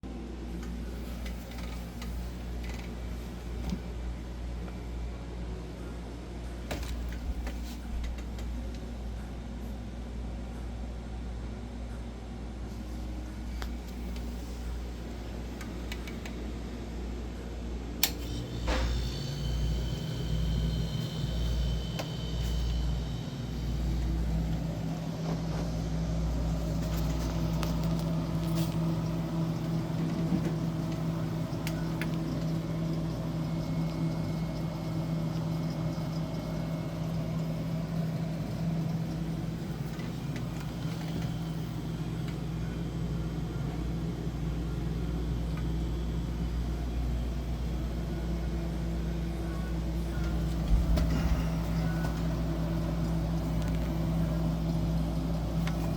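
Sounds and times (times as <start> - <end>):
refrigerator fan humming: 0.0 - 55.9
clicks: 15.6 - 16.4, 18.0 - 18.4.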